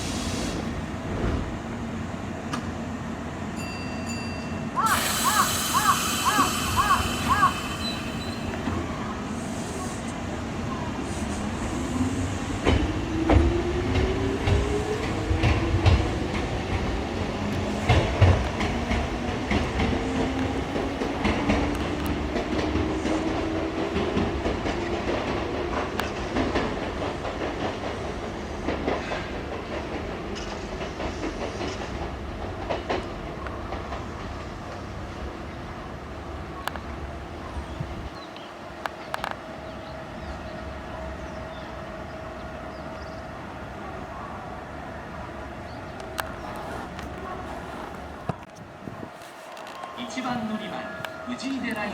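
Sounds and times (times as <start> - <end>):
train motor whine: 4.8 - 9.2
wheels clacking over rail joints: 45.9 - 51.9.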